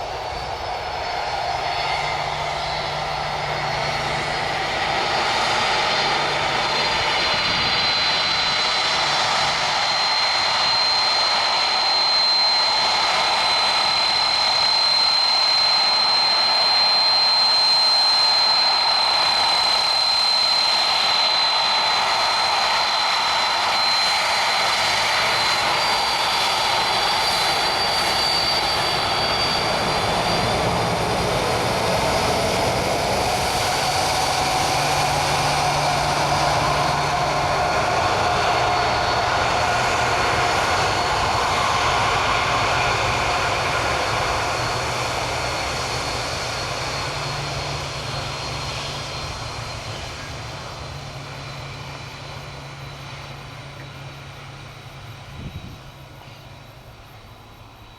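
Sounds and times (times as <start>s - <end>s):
jet engines whining: 0.0s - 57.9s.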